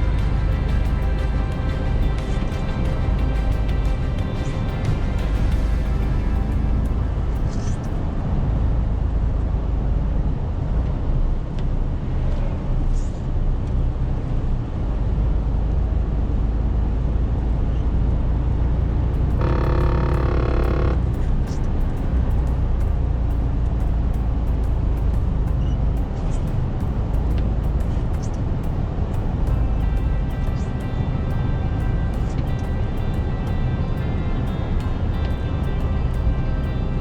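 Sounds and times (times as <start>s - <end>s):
truck diesel engine droning: 18.8s - 24.4s
held tone with overtones: 18.9s - 23.7s.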